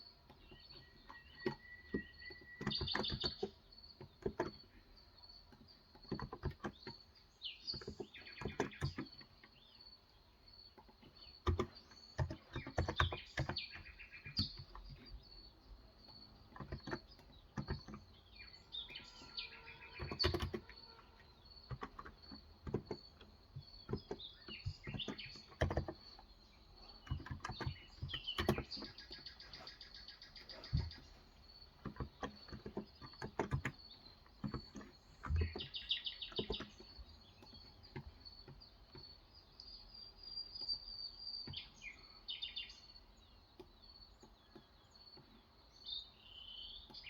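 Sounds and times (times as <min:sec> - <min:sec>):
birds chirping: 0:00.0 - 0:47.0
typing on keyboard: 0:00.2 - 0:04.8, 0:05.4 - 0:09.6, 0:10.7 - 0:29.7, 0:31.7 - 0:39.2.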